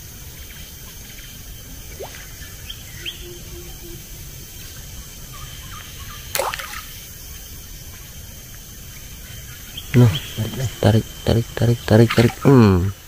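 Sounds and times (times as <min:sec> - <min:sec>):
river background noise: 0:00.0 - 0:13.0
bird chirps: 0:01.2 - 0:06.4, 0:09.2 - 0:13.0.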